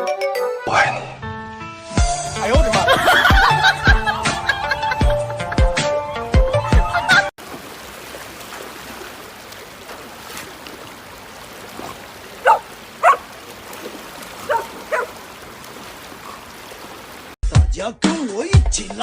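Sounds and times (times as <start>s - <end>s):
dog barking: 11.8s - 13.3s, 14.4s - 15.2s.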